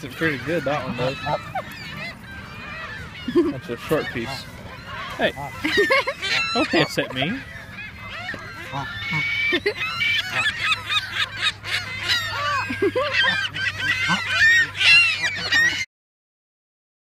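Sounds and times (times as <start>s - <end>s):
geese honking: 0.0s - 15.9s.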